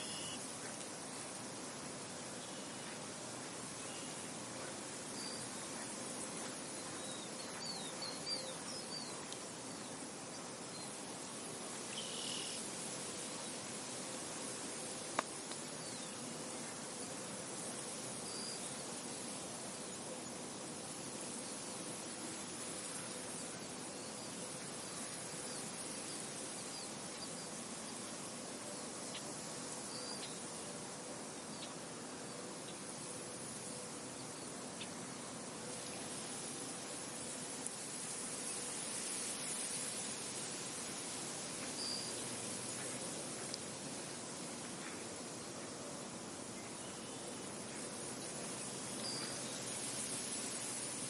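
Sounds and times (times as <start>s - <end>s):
faint bird chirps: 0.0s - 0.8s, 3.8s - 11.0s, 11.9s - 12.6s.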